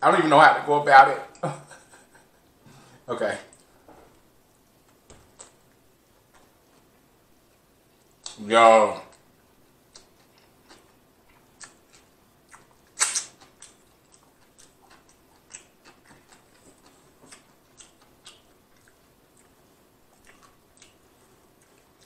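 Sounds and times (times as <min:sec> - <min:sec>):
person chewing with mouth clicks: 0:09.1 - 0:22.0
loud mouth smack: 0:13.0 - 0:13.3.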